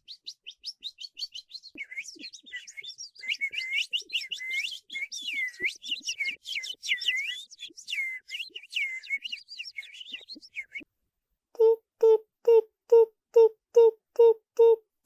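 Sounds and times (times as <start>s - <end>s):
short repeated bird chirps: 0.0s - 10.8s.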